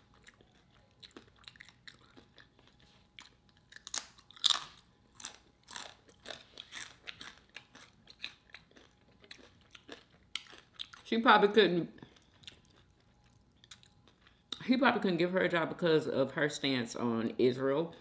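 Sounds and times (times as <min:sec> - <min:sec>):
crunching and chewing chip: 0:00.0 - 0:11.1, 0:11.9 - 0:14.6.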